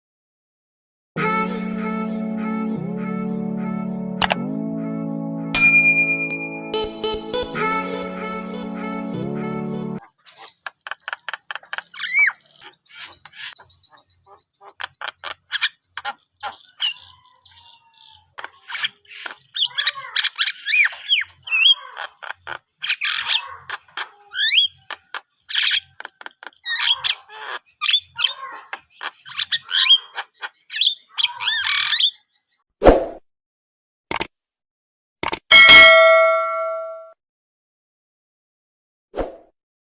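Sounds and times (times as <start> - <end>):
bird song with clicking chatter: 10.0 - 32.6.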